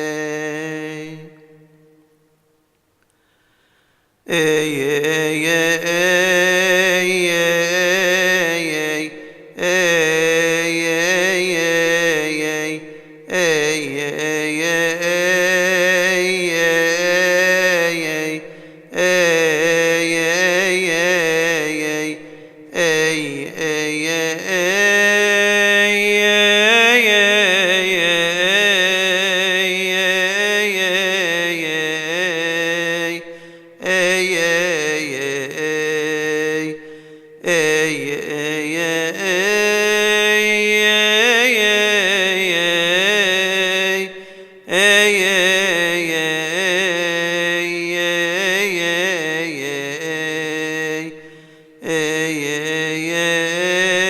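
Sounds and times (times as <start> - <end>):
man chanting a hymn: 0.0 - 1.9, 4.2 - 54.0
short breath: 3.0 - 4.2, 18.5 - 18.9, 22.2 - 22.6, 33.3 - 33.8, 36.8 - 37.4, 44.1 - 44.7, 51.2 - 51.8.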